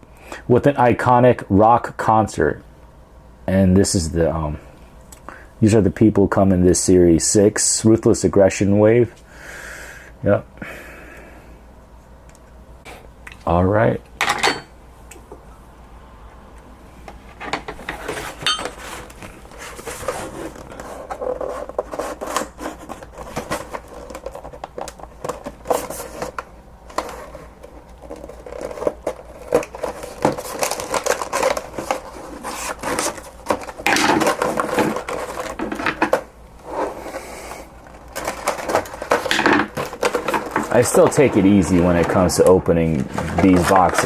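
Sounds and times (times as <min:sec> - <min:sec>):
packaging being opened by hand: 0:17.9 - 0:36.3, 0:37.0 - 0:44.0.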